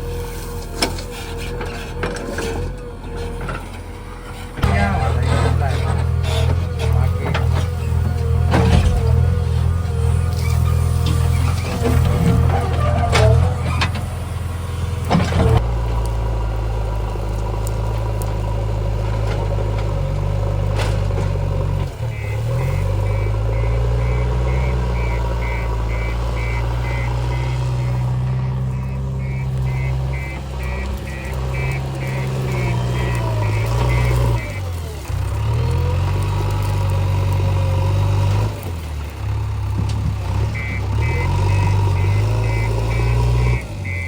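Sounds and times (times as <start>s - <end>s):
heavy diesel engine running: 0.0s - 44.0s
reversing alarm beeping: 22.0s - 34.7s, 40.5s - 44.0s.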